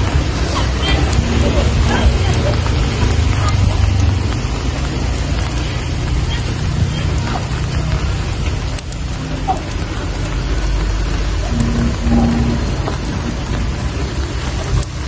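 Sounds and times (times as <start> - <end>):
steady rain falling: 0.0 - 15.0
drop ticks: 0.8 - 15.0
deep low rumble: 9.8 - 15.0.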